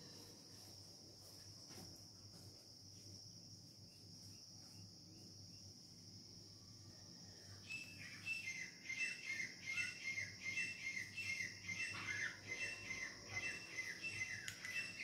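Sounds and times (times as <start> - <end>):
steady high-pitched hiss: 0.0 - 15.0
small bird chirping: 7.5 - 15.0.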